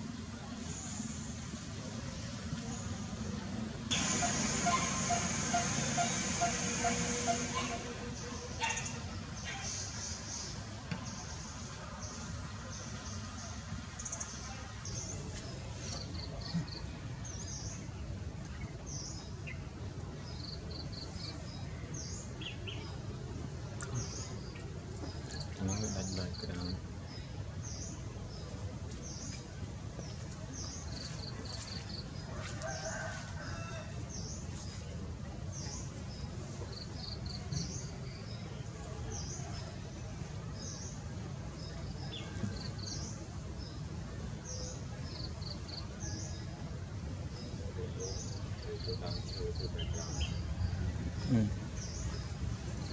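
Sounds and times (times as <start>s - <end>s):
low background rumble: 0.0s - 25.4s.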